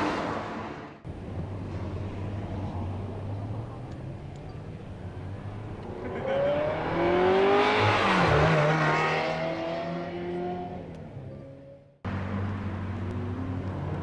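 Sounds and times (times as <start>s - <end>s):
sports car accelerating past: 5.8s - 10.8s.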